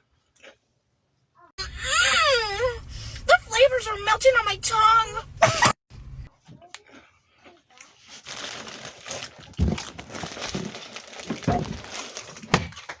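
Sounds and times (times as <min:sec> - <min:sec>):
foil chip bag crinkling: 0:07.7 - 0:13.0.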